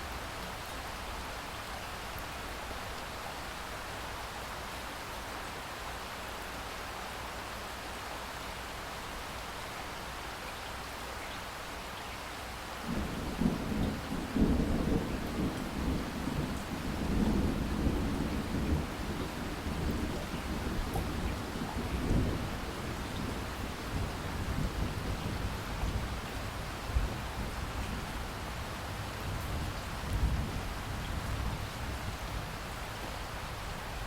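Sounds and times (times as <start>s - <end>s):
steady rain: 0.0s - 34.0s
thunder rumbling: 12.9s - 28.2s.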